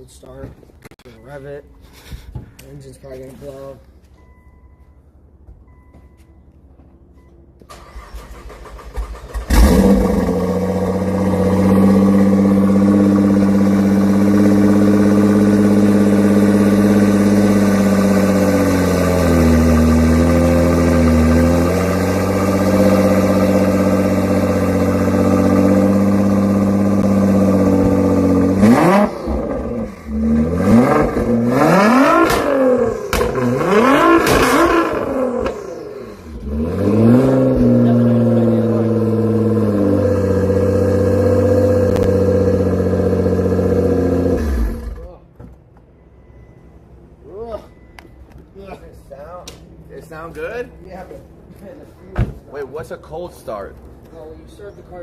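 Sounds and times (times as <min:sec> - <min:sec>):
car engine idling and revving: 0:06.8 - 0:48.3.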